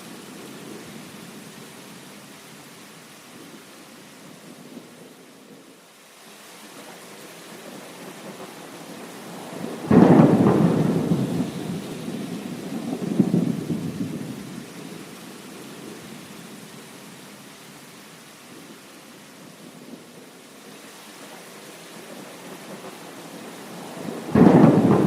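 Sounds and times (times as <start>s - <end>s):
heavy rain: 0.0s - 25.0s
thunderclap rumbling: 9.4s - 14.7s, 23.4s - 25.0s.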